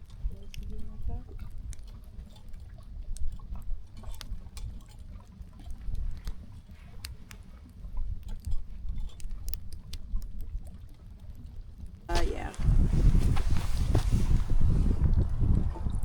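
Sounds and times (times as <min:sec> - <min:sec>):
clicks and rustles of handling: 0:00.0 - 0:15.2
wind rumbling on microphone: 0:12.0 - 0:16.0.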